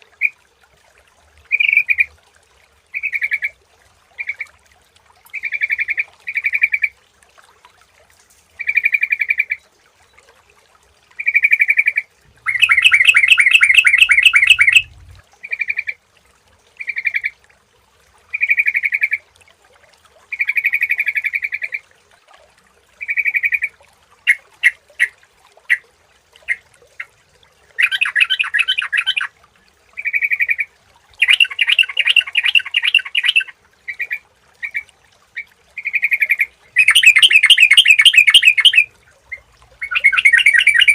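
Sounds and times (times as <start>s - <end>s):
bulbul bubbly calls: 0.0s - 0.4s, 1.4s - 2.2s, 2.9s - 4.6s, 5.3s - 7.0s, 8.6s - 9.6s, 11.2s - 16.0s, 16.8s - 17.4s, 18.3s - 19.3s, 20.3s - 21.8s, 23.0s - 25.8s, 26.4s - 29.3s, 30.0s - 40.9s
bird rapid chattering: 12.4s - 15.1s, 36.8s - 38.8s.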